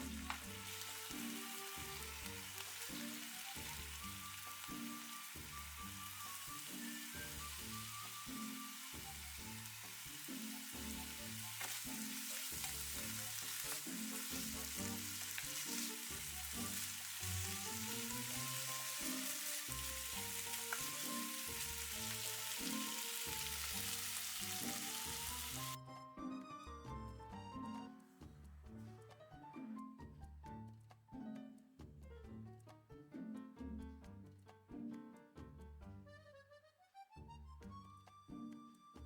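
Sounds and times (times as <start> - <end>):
batter sizzling in a pan: 0.0 - 25.8
background music: 0.0 - 39.0.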